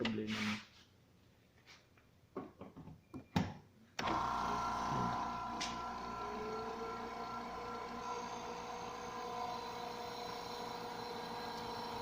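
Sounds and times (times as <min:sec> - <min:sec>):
electric motor humming and whining: 0:04.0 - 0:12.0.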